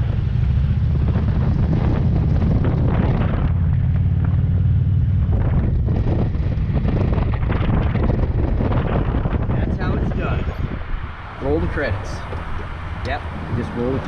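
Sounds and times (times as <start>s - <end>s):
motorcycle engine running: 0.0s - 9.6s
wind buffeting on microphone: 0.0s - 14.0s.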